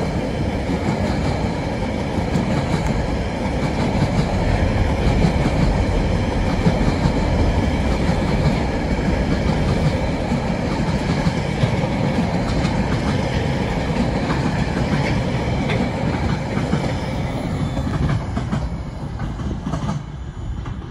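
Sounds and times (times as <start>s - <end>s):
freight train wagons rolling: 0.0s - 20.9s.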